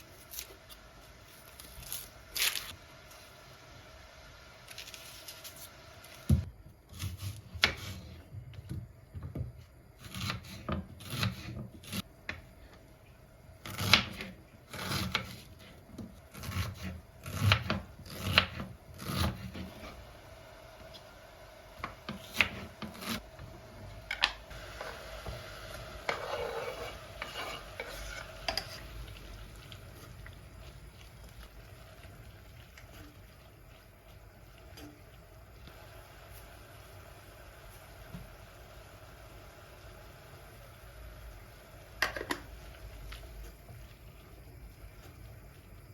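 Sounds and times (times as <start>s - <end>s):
utensils and dishes scraping: 26.0s - 28.8s.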